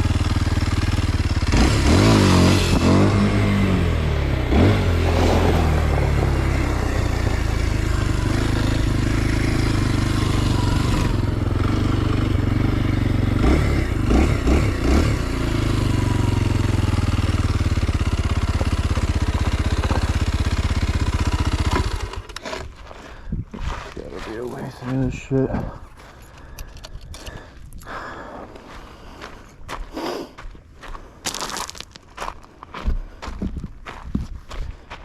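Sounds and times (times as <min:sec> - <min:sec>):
motorcycle engine revving: 0:00.0 - 0:22.8.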